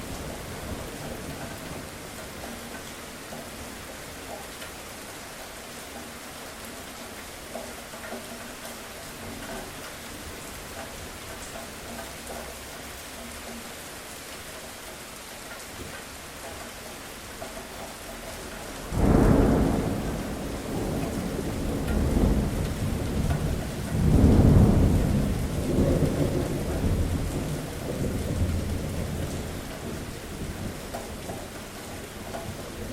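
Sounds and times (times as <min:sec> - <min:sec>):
steady rain falling: 0:00.0 - 0:32.9
thunder clap rumbling: 0:18.9 - 0:31.0.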